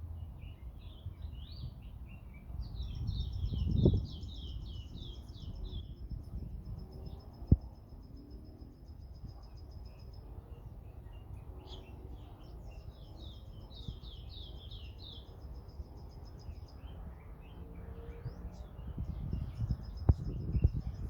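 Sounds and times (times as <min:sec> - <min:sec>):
steady low rumble: 0:18.6 - 0:21.0.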